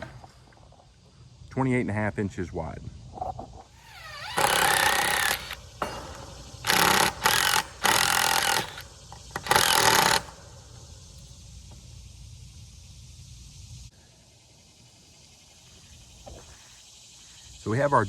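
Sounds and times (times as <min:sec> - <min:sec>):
power driver sinking screws into wood: 0:04.0 - 0:10.4.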